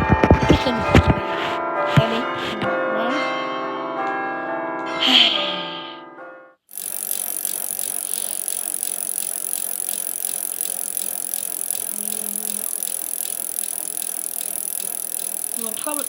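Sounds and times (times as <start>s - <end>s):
fast mechanical clicks: 6.7s - 16.0s.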